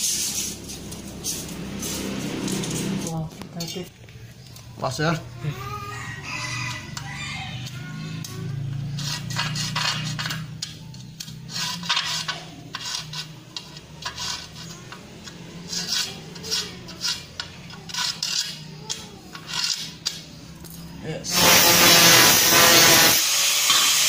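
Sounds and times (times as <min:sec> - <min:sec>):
metal scraping on metal: 0:06.0 - 0:20.5, 0:21.3 - 0:24.0.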